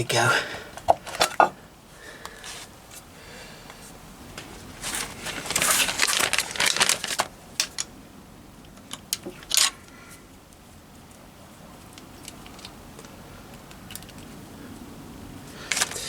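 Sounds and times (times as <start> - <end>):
crinkling rustle: 3.7 - 7.9, 8.7 - 16.0.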